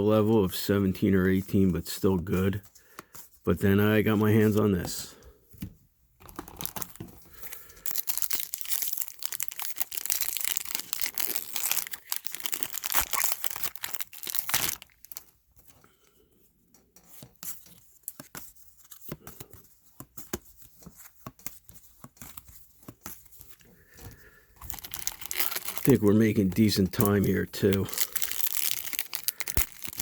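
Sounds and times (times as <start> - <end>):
wrappers tearing and crinkling: 6.3 - 15.3, 24.6 - 30.0.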